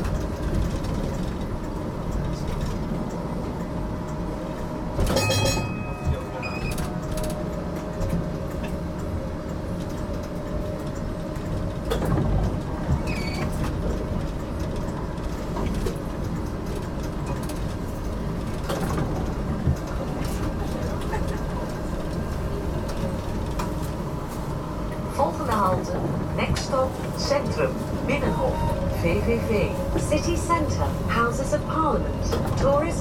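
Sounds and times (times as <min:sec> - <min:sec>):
tram rumbling on track: 0:00.0 - 0:33.0.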